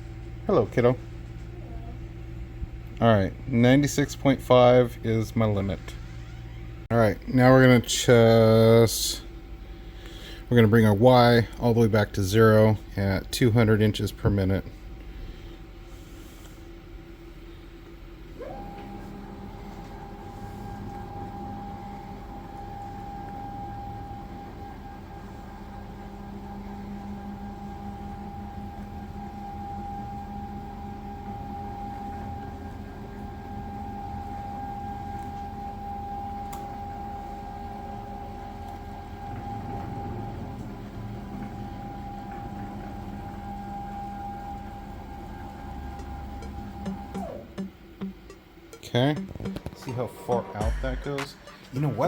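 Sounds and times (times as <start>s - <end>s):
stepper motors whining: 18.3s - 48.1s.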